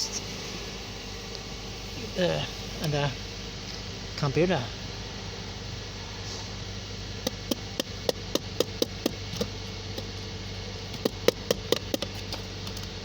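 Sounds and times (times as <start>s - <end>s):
steady engine hum: 0.0s - 13.0s
sharp taps on engine computer: 7.2s - 10.2s, 10.9s - 13.0s.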